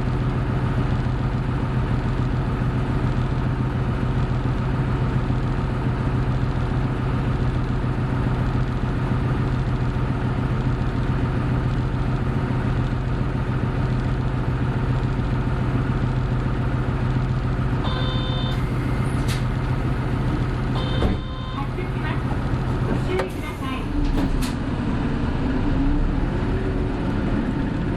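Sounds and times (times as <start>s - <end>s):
bus engine humming: 0.0s - 27.9s
short electronic beeping: 17.8s - 18.6s, 20.8s - 21.8s.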